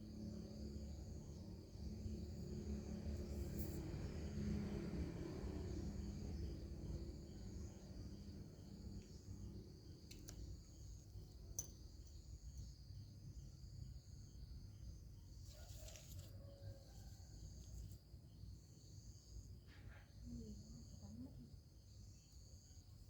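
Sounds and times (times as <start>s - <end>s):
high-pitched insect chorus: 0.0s - 19.6s, 20.3s - 23.0s.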